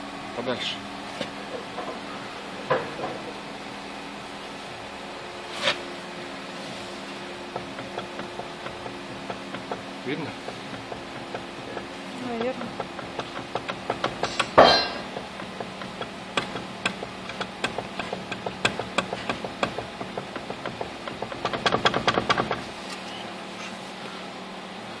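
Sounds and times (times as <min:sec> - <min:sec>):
steady low hum: 0:00.0 - 0:25.0
suspension knocking: 0:07.2 - 0:22.7.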